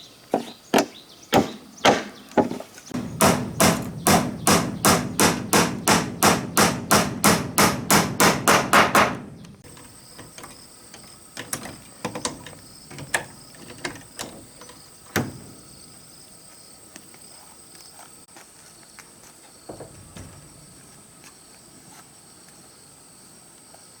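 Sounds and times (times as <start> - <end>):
light knocks: 2.4 - 15.6, 19.7 - 21.1
rapid hammer blows: 3.0 - 9.7
cricket trill: 3.0 - 18.2.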